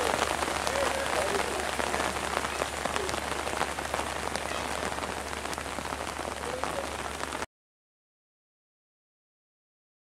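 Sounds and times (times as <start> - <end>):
raindrop ticks: 0.0 - 7.5
steady rain hissing: 0.0 - 7.5.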